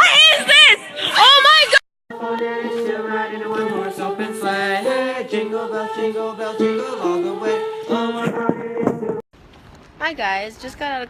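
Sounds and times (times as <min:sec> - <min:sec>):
choir singing unaccompanied: 0:02.1 - 0:09.2.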